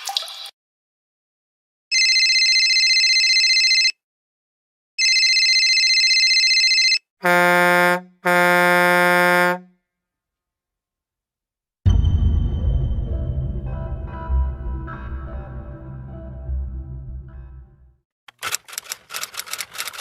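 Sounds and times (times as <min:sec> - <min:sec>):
low harsh electronic buzzer: 0:07.2 - 0:09.7.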